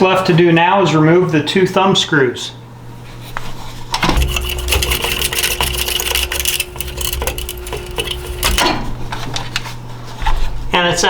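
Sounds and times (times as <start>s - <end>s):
steady hum: 3.9s - 9.3s.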